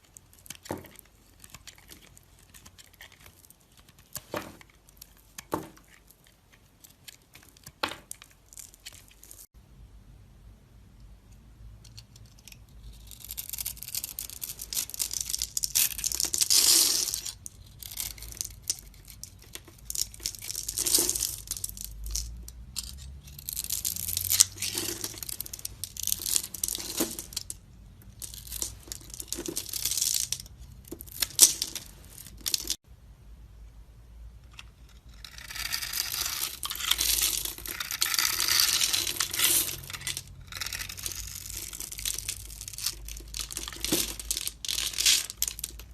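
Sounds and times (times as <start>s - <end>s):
knife scraping soap: 0.0s - 9.2s, 34.7s - 45.6s.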